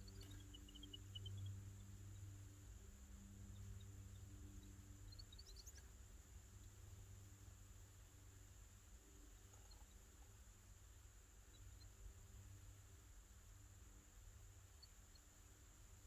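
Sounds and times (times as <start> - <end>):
small bird chirping: 0.0 - 7.4, 9.3 - 10.4, 11.4 - 12.6, 14.6 - 16.0
faint low hum: 0.0 - 16.0.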